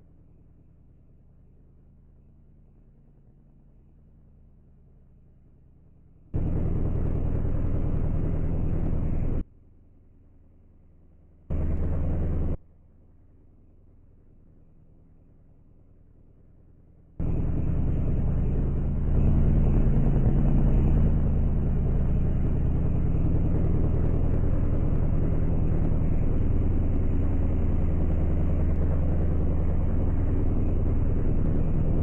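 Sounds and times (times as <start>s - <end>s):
vehicle engine hum: 6.4s - 9.4s, 11.5s - 12.6s, 17.2s - 32.0s.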